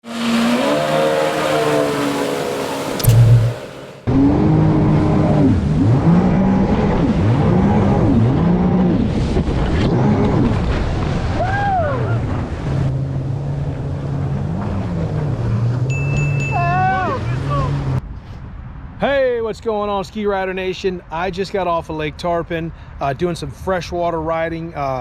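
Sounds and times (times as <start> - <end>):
water noise: 0.0 - 4.1
jet ski engines: 0.0 - 18.0.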